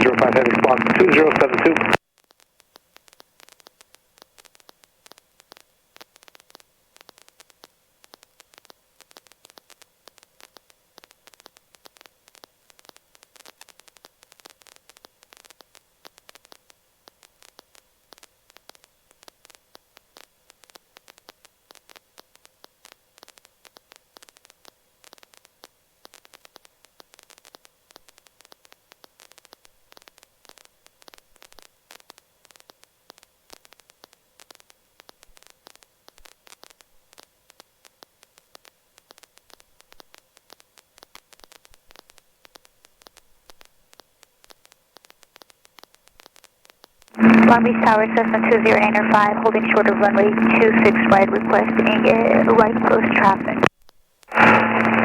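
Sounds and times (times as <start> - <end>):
radio static crackling: 0.0 - 2.0, 47.2 - 53.7, 54.3 - 55.0
steady radio hum: 0.0 - 2.0, 47.2 - 53.7, 54.3 - 55.0.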